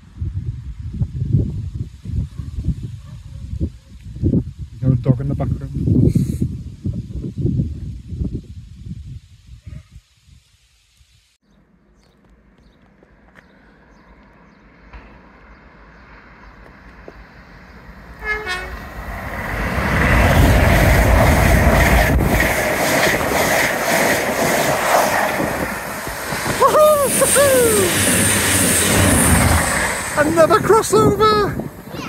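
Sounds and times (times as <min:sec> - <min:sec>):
train rushing past: 0:14.8 - 0:32.0
train horn blast: 0:18.2 - 0:18.9.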